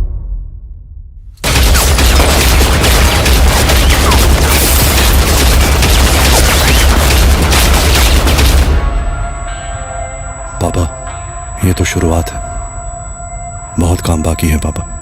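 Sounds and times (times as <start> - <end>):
low rumble: 0.0 - 9.4
rapid automatic gunfire: 1.4 - 8.8.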